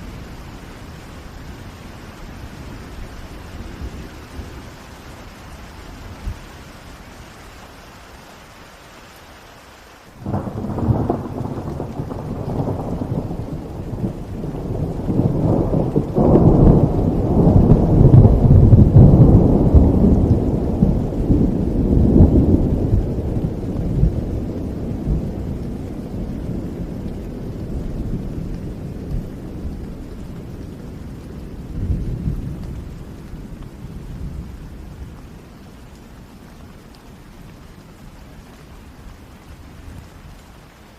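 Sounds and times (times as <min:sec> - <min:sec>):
steady rainfall: 0:00.0 - 0:40.9
thunder rumbling: 0:10.2 - 0:36.5.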